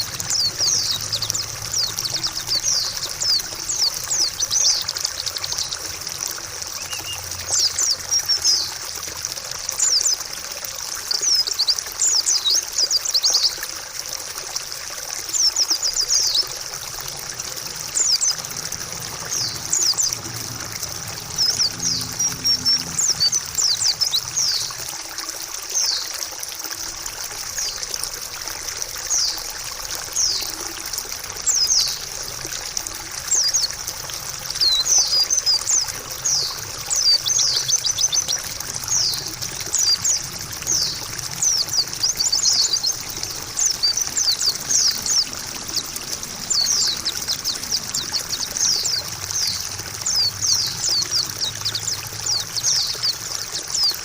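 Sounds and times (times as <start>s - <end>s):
bird twittering: 0.0s - 5.9s, 6.7s - 8.7s, 17.4s - 24.8s, 34.5s - 54.0s
trickling splashing water: 0.0s - 54.0s.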